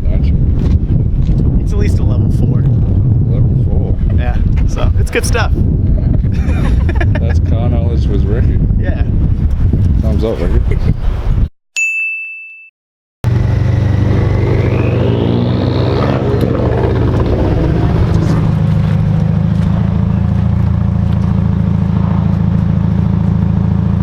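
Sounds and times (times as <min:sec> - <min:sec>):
rising whine: 0:13.2 - 0:24.0
vehicle engine idling: 0:13.3 - 0:24.0.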